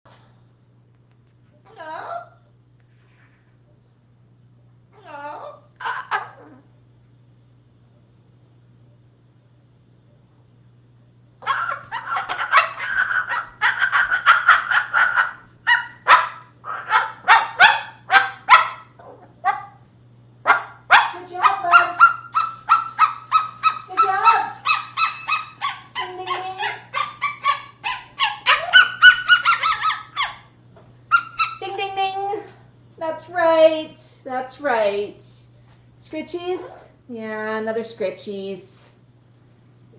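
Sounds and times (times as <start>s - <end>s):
cockatoo imitating dog bark: 5.0s - 6.7s, 11.4s - 19.8s, 20.5s - 31.7s.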